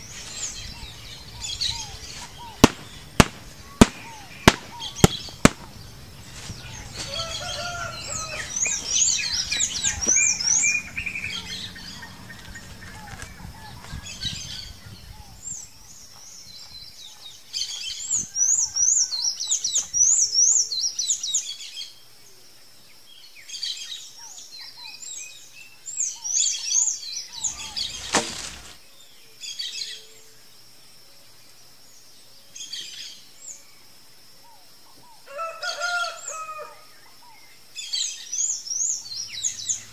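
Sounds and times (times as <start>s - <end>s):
birds chirping: 0.0s - 21.0s, 25.7s - 28.8s, 37.2s - 39.9s.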